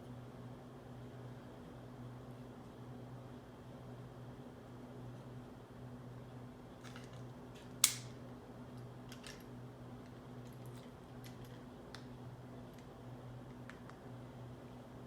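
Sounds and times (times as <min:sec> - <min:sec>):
steady low hum: 0:00.0 - 0:15.0
sharp snap: 0:07.8 - 0:08.2.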